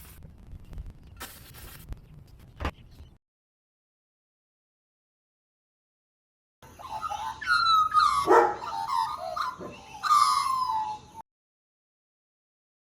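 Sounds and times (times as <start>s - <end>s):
magpie carolling: 6.7s - 11.2s.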